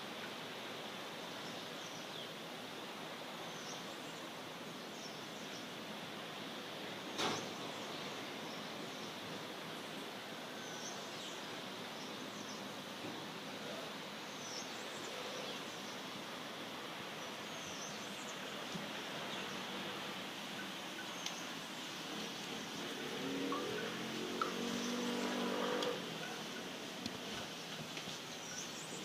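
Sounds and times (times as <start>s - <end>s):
outdoor ambient noise: 0.0s - 29.0s
vehicle engine: 22.1s - 26.9s.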